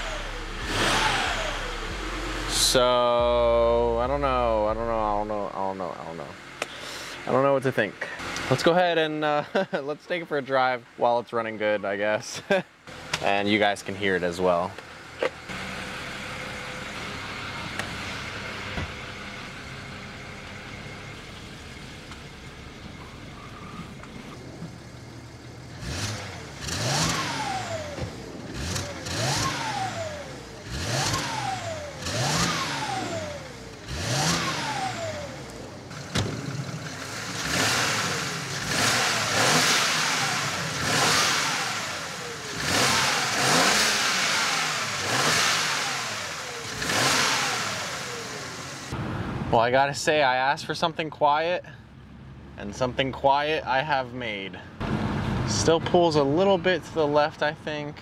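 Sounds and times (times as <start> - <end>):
car engine running and revving: 0.0 - 7.3, 12.9 - 49.2.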